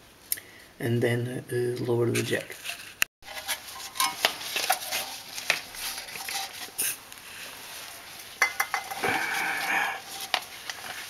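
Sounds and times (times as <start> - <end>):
rustle: 2.6 - 11.0.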